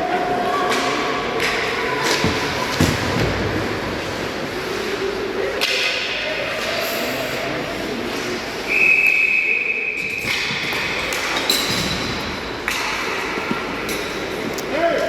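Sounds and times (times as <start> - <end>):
skates scraping ice: 1.4 - 5.5.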